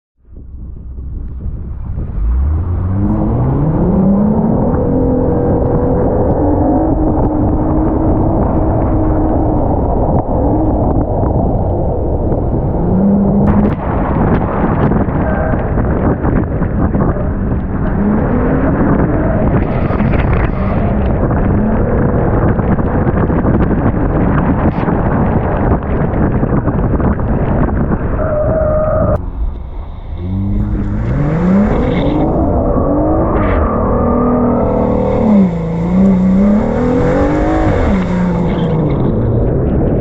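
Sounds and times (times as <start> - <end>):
exhaust pops and crackles: 0.2 - 12.7, 13.4 - 29.6
engine revving: 1.4 - 9.5, 29.1 - 40.0.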